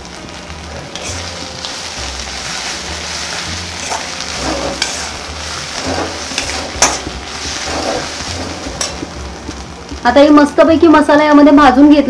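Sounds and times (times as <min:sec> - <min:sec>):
beans sizzling in a pan: 0:00.0 - 0:12.0
spatula scraping a pan: 0:00.9 - 0:09.2
metal clink on a pan: 0:06.4 - 0:07.1, 0:08.8 - 0:09.1.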